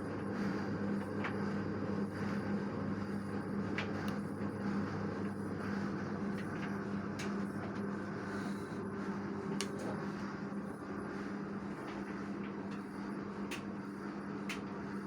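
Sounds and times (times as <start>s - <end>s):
washing machine humming: 0.0s - 15.0s.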